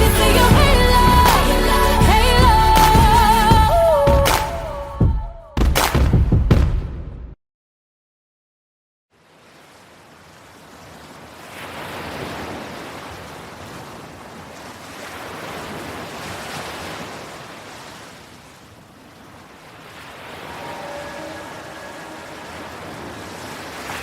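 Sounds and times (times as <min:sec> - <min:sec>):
ocean waves washing in and out: 0:09.1 - 0:24.0.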